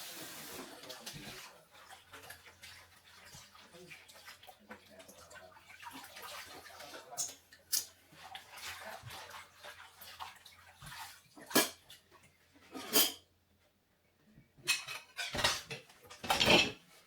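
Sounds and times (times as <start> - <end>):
water splashing and running: 0.0 - 12.2.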